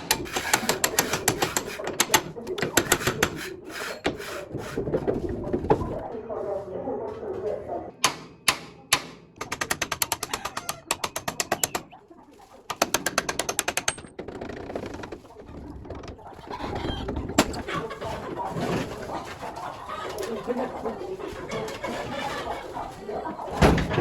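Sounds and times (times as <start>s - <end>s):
rapid clicking: 0.0s - 3.4s, 9.4s - 11.9s, 12.7s - 16.4s
sharp knock: 8.0s - 9.2s
birds: 9.9s - 13.2s, 14.9s - 23.9s.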